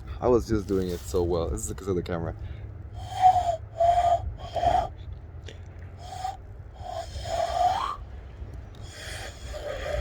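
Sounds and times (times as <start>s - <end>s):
hand-cupped whistle hoots: 3.0s - 4.9s.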